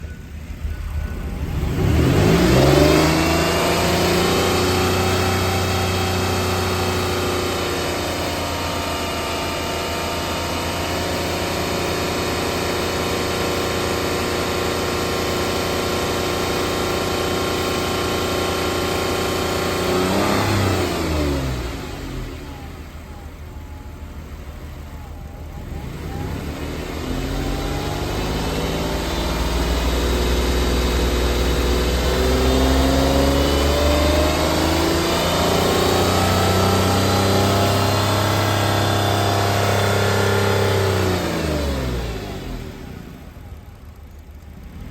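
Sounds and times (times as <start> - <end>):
car engine running: 0.0 - 44.9.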